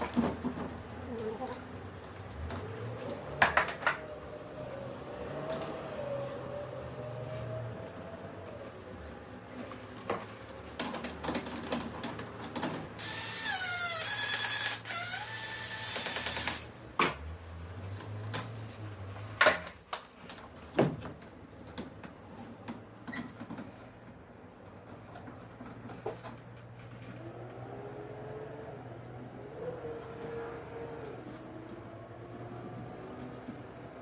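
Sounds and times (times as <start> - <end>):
power drill whining: 13.0 - 16.7.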